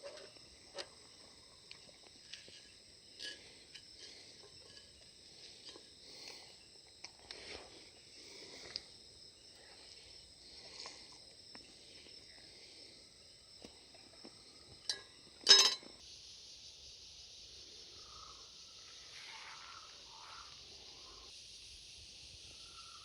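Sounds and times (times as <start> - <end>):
faint ticks and rustles: 0.0 - 12.5
insects chirping: 0.0 - 23.0.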